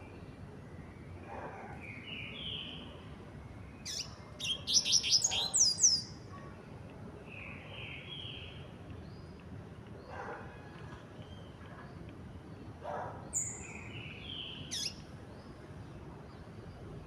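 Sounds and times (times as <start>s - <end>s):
bird singing whistled notes: 3.8s - 6.1s, 13.4s - 15.0s.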